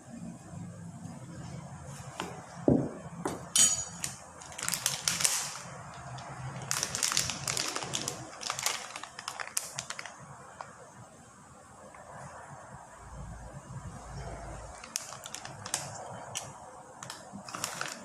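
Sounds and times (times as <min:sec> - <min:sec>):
utensils clattering: 0:03.4 - 0:04.2
metallic clink: 0:03.6 - 0:04.0.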